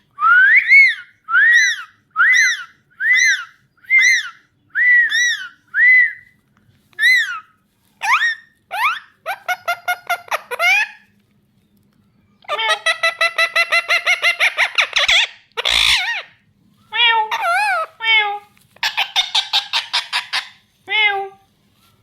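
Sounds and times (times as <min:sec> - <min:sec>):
parakeet squawk: 0:07.0 - 0:11.0, 0:12.4 - 0:21.2
parakeet chattering: 0:12.4 - 0:16.3, 0:17.0 - 0:20.6.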